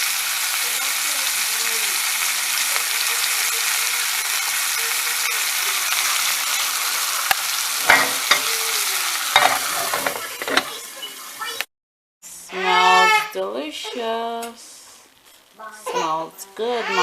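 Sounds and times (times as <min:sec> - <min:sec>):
chicken sizzling in hot oil: 0:00.0 - 0:11.7.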